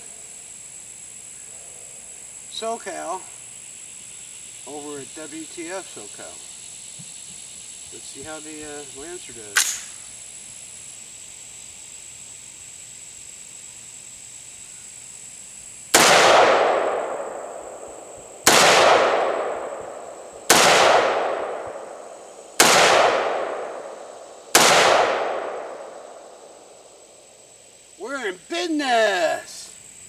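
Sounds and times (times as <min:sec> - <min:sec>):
pistol shots with echo: 0:09.6 - 0:10.0, 0:16.0 - 0:26.6.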